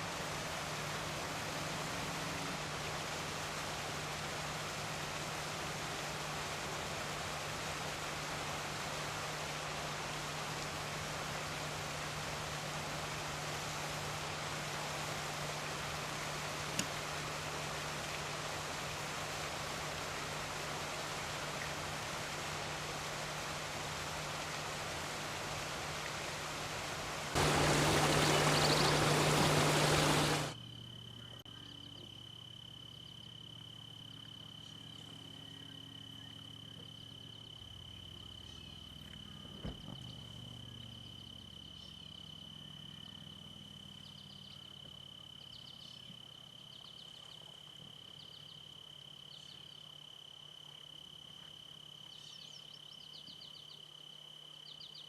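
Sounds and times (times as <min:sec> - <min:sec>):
running water: 0:00.0 - 0:30.6.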